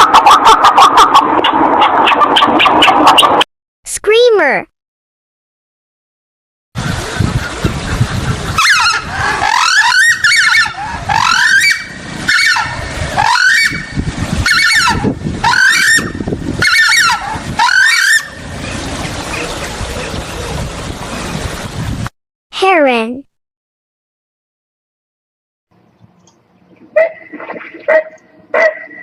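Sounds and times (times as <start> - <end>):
bird giving harsh calls: 8.5 - 18.4.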